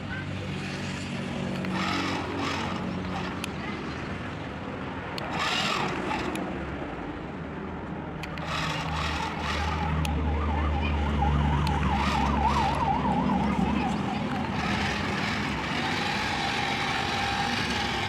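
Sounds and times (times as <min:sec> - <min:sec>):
low engine hum: 0:01.1 - 0:18.0
siren warbling: 0:09.2 - 0:16.0
siren whoop: 0:10.0 - 0:14.0.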